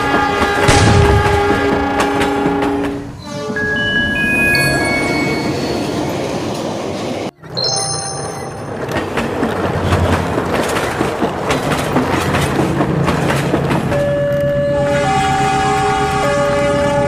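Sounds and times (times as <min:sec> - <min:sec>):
train rumbling on track: 0:00.0 - 0:07.4, 0:08.5 - 0:17.0
high ringing transition effect: 0:03.6 - 0:06.4.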